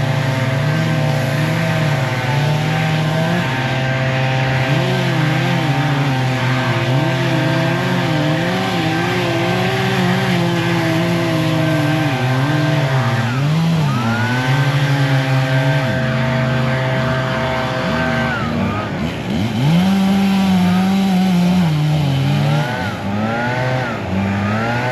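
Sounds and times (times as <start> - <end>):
constant whine: 0.0 - 19.8
heavy machine engine running: 0.0 - 24.9.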